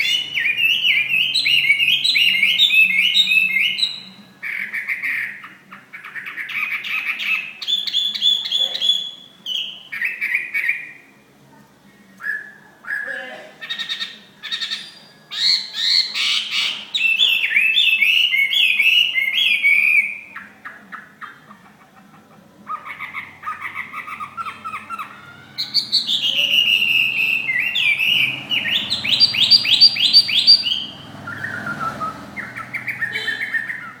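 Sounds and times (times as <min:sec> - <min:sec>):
bird singing: 0:00.0 - 0:11.2, 0:12.0 - 0:34.0
clear repeated bird whistles: 0:25.6 - 0:34.0.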